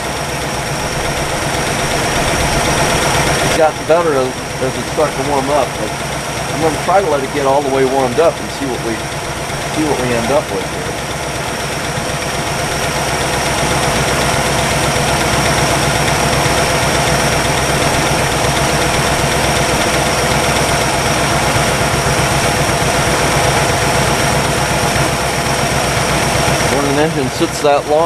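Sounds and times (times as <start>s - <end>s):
car engine idling: 0.0s - 28.0s
fast engine ticking: 0.0s - 28.0s.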